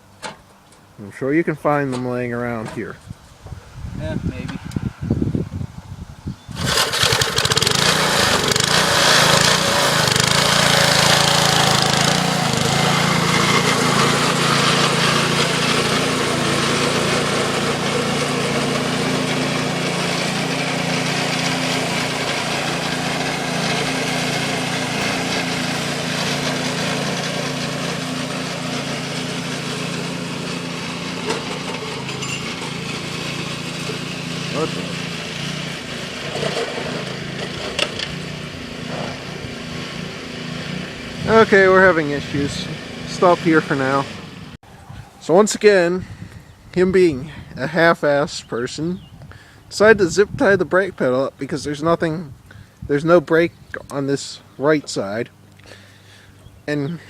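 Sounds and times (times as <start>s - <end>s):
small engine running: 6.5s - 44.6s.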